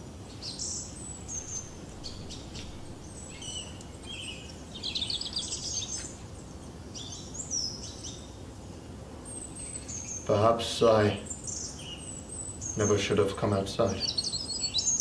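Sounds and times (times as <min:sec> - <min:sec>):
birds chirping and twittering: 0:00.0 - 0:15.0
low background noise: 0:00.0 - 0:15.0
bird trills: 0:00.3 - 0:08.4, 0:14.0 - 0:15.0.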